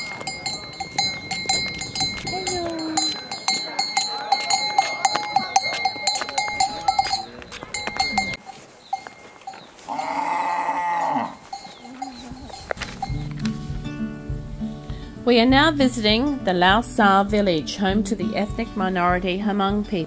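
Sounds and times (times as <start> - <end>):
farm animal bleating: 0.0 - 5.1, 9.0 - 13.2
livestock bell clanking: 0.0 - 13.6.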